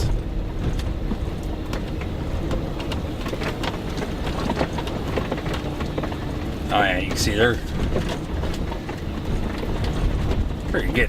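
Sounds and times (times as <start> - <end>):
small rattles and clicks: 0.0 - 11.0
vehicle rumbling on dirt road: 0.0 - 11.0.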